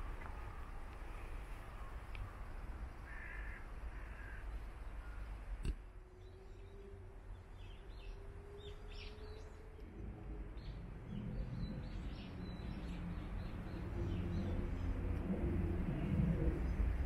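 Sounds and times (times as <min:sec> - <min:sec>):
low outdoor rumble: 0:00.0 - 0:17.0
small birds chirping: 0:06.2 - 0:15.0.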